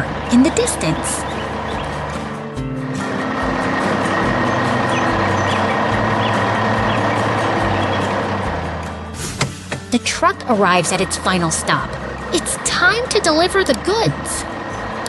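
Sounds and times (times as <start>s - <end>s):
truck engine running under load: 0.0s - 15.0s.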